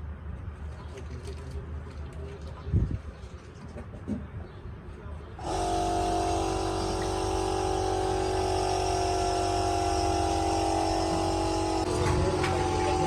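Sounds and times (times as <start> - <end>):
engine running steadily: 5.4 - 13.0.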